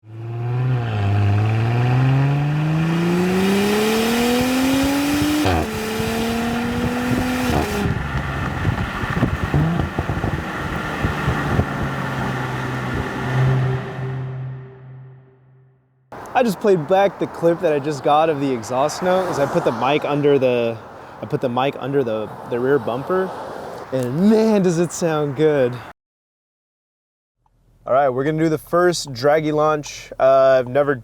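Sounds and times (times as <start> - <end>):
car exhaust accelerating: 0.0 - 16.3
exhaust pops and crackles: 6.6 - 12.5.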